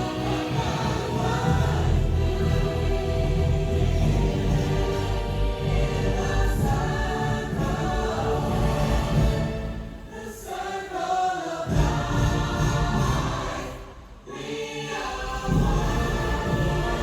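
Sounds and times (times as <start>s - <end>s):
orchestral music: 0.0s - 10.8s, 11.7s - 17.0s
choir singing held notes: 0.0s - 17.0s
deep low bass: 1.2s - 9.5s.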